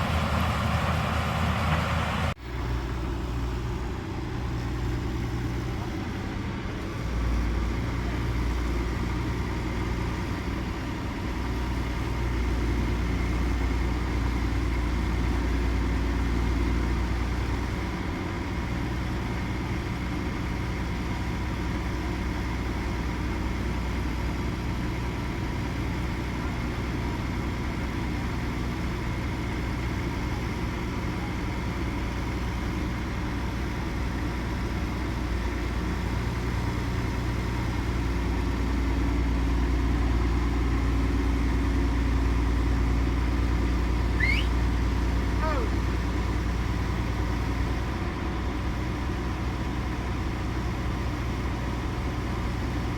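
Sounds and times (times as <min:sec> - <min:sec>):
high engine whine: 0:00.0 - 0:07.3, 0:43.8 - 0:47.4
diesel engine running: 0:00.0 - 0:52.9.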